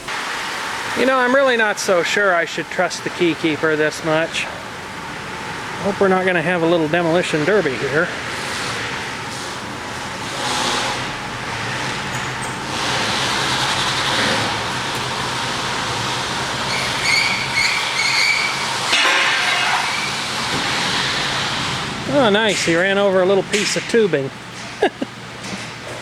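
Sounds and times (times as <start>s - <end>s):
tyres rolling: 0.8s - 26.0s
car engine running: 2.6s - 17.6s
short high squeaks: 16.6s - 20.2s.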